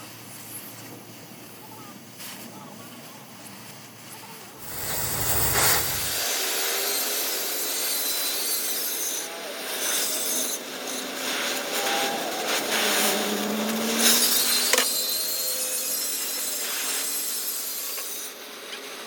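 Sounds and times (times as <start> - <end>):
metal scraping: 4.6 - 6.3.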